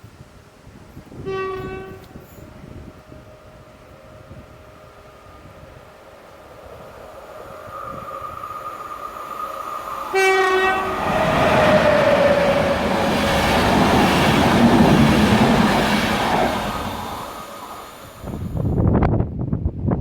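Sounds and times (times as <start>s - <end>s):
train rushing and rumbling past: 0.5s - 20.0s
train horn blast: 1.1s - 6.4s, 10.1s - 12.9s
steady tone: 3.3s - 18.7s.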